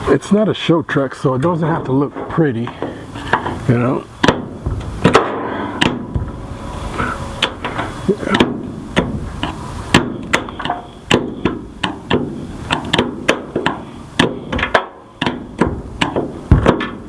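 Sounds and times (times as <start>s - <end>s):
hand tools knocking on metal: 9.9s - 17.0s.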